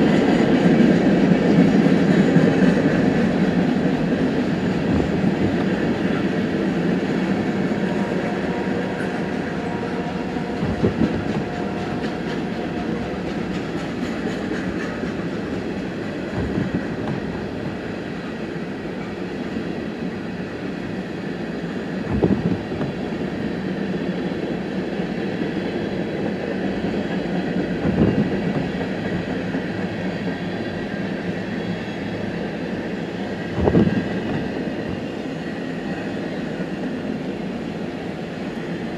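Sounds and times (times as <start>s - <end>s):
train rumbling on rails: 0.0s - 38.9s
short thump: 16.4s - 17.2s.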